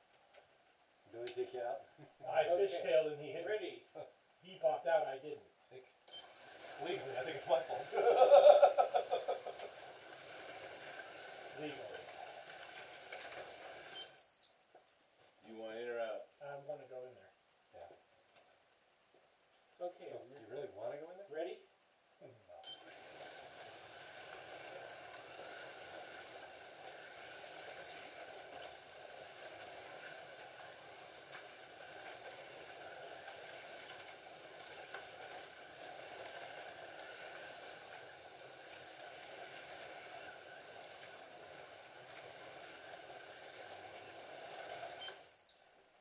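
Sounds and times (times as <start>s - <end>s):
slot car motors whining: 6.1s - 14.3s, 22.7s - 45.6s.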